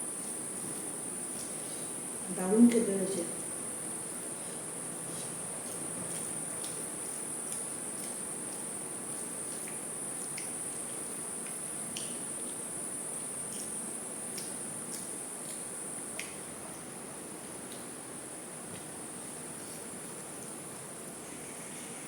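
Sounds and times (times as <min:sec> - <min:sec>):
low even hiss: 0:00.0 - 0:22.0
mouth clicks and smacks: 0:09.6 - 0:10.6, 0:11.4 - 0:12.6, 0:13.5 - 0:16.4.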